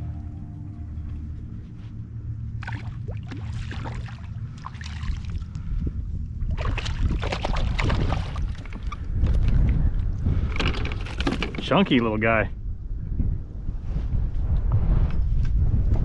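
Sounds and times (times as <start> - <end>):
low steady rumble: 0.0 - 16.0
water splashing and dripping: 2.6 - 5.6, 6.6 - 9.0.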